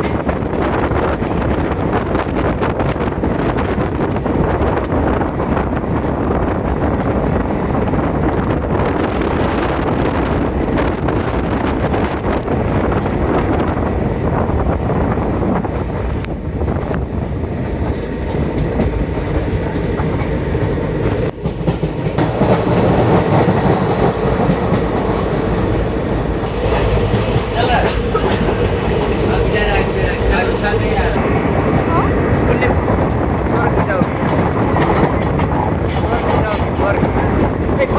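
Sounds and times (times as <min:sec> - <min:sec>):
train rumbling on rails: 0:00.0 - 0:37.9
train wheels clattering: 0:32.4 - 0:37.9.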